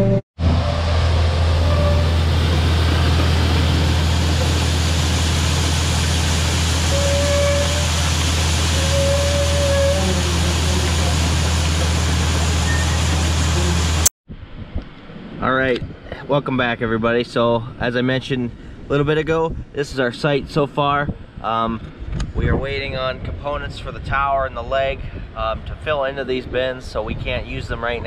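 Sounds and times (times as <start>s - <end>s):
combine harvester engine drone: 0.0s - 14.1s.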